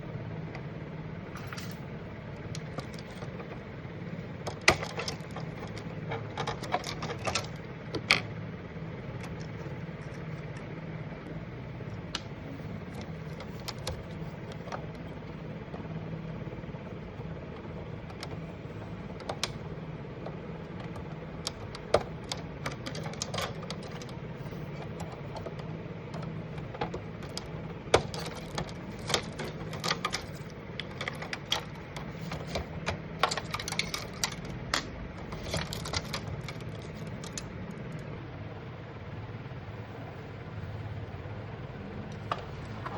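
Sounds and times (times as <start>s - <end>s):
steady low hum: 0.0s - 42.9s
plastic and metal parts clicking: 2.4s - 3.6s, 4.4s - 8.3s, 12.0s - 15.2s, 18.0s - 18.4s, 19.1s - 38.0s.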